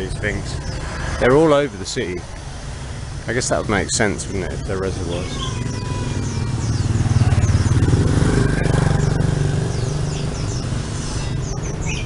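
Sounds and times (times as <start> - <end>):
birds chirping faintly: 0.0 - 12.0
motorbike passing: 4.5 - 12.0.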